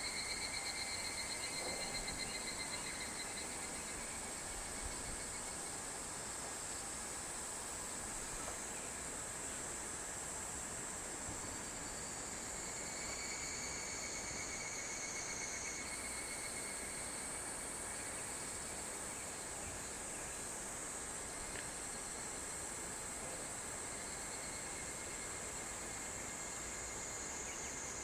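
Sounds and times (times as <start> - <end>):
insects trilling: 0.0 - 5.7, 11.5 - 20.6, 23.8 - 28.0.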